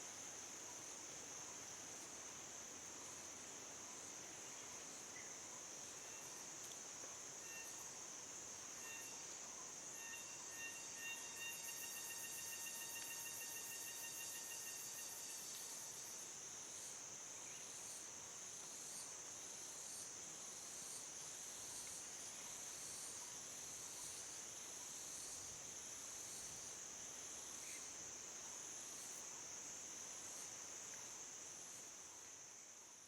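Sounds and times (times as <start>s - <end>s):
high insect chirp: 4.0s - 33.0s
high-pitched insect drone: 8.8s - 9.2s, 9.8s - 15.5s.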